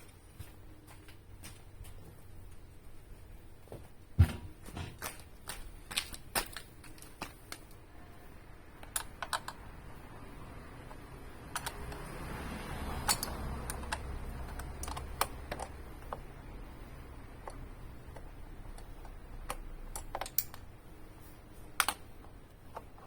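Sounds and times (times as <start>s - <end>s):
tools and small parts clicking: 8.7s - 9.6s, 10.8s - 12.3s, 12.9s - 16.4s, 17.3s - 20.8s, 21.7s - 23.0s.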